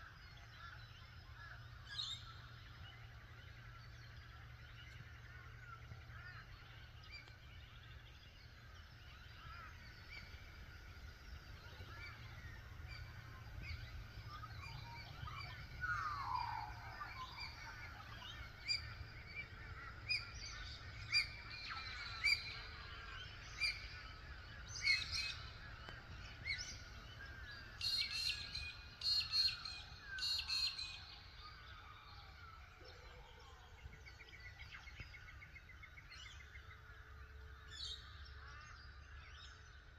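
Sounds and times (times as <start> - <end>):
birds chirping and whistling: 11.6 - 25.6.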